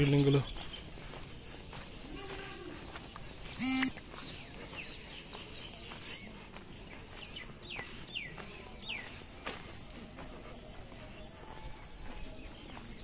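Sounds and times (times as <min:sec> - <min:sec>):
birds calling: 0:00.0 - 0:13.0
faint background noise: 0:00.0 - 0:13.0.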